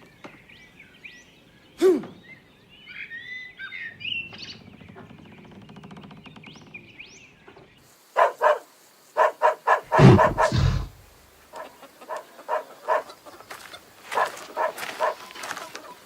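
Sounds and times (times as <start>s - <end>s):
dog barking in short yelps: 8.2s - 8.6s
loud deep rumble: 9.9s - 11.0s.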